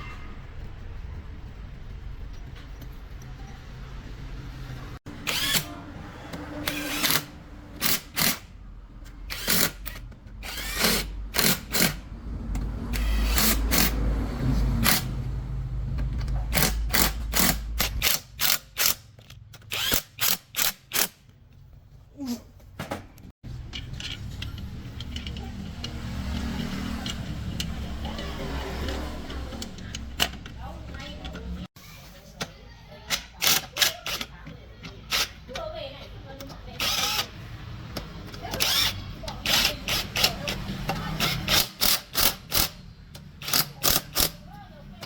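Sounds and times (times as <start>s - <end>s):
tool bursts and clatters: 5.1s - 5.8s, 6.6s - 14.0s, 14.8s - 15.2s, 16.2s - 21.4s, 36.8s - 44.5s.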